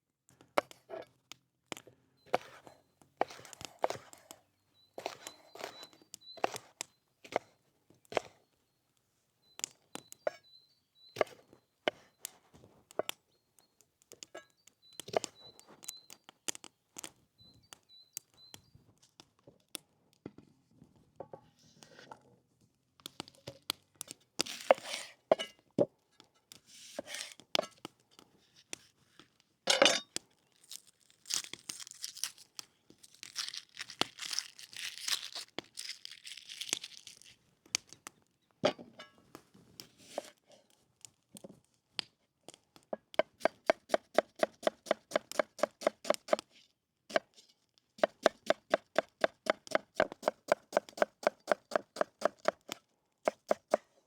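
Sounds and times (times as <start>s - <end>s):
faint high chirp: 2.2s - 7.2s, 8.4s - 12.4s, 13.3s - 16.4s, 17.4s - 18.9s
rustling and tearing: 30.5s - 37.4s.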